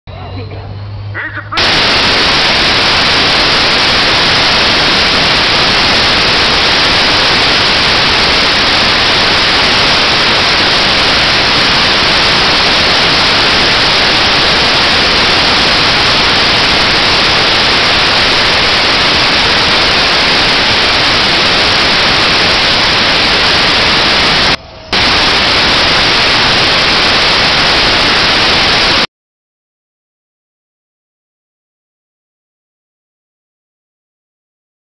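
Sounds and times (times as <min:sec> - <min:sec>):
distorted tractor engine roar: 0:00.9 - 0:29.1.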